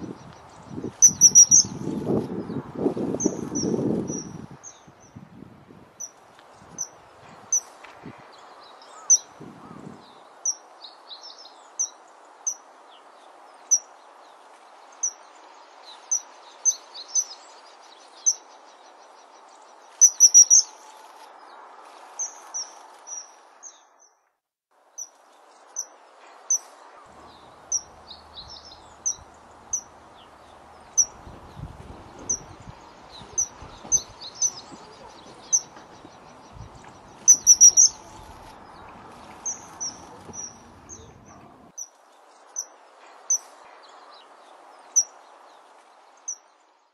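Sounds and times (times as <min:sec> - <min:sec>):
wild birds calling: 0:00.0 - 0:02.2, 0:08.4 - 0:10.6, 0:18.0 - 0:21.1, 0:25.8 - 0:41.9
steady background hiss: 0:24.8 - 0:46.9.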